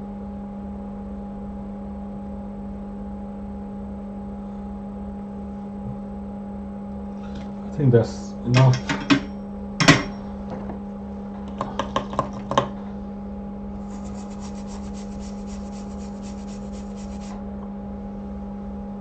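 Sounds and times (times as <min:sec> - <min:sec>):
low electrical hum: 0:00.0 - 0:19.0
hand tool scraping hard surface: 0:13.8 - 0:17.4.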